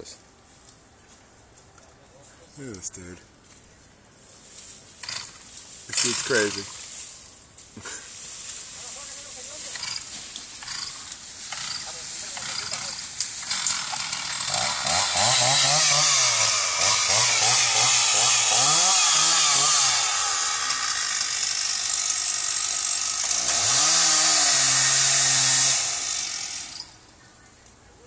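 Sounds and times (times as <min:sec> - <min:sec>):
chainsaw cutting tree limbs: 0:05.0 - 0:07.1, 0:07.8 - 0:27.0.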